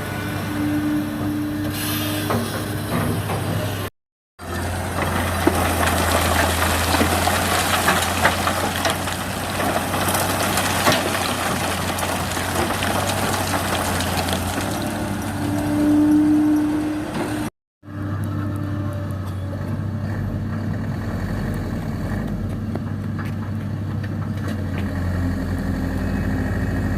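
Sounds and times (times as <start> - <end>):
sand and stones scraping: 4.7 - 16.6.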